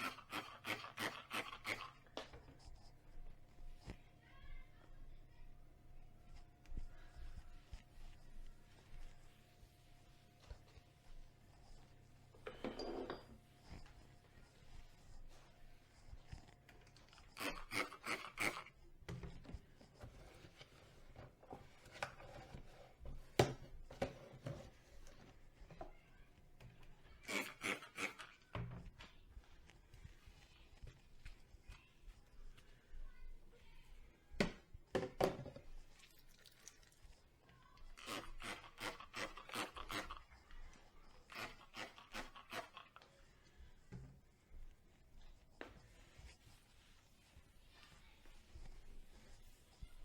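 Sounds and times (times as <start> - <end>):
scrubbing a dish: 6.2 - 50.0
dishes clinking and scraping: 12.4 - 13.8.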